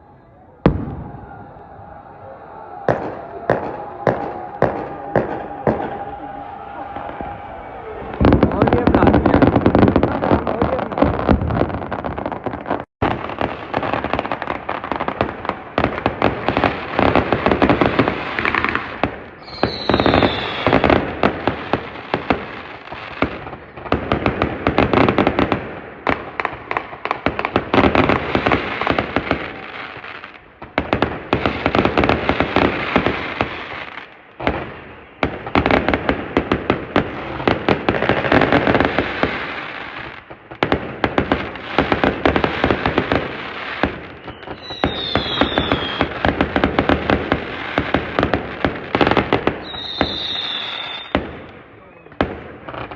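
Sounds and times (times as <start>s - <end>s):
falling firework whistle: 0.0s - 23.8s, 41.6s - 52.2s
fireworks crackling bangs: 0.0s - 52.9s.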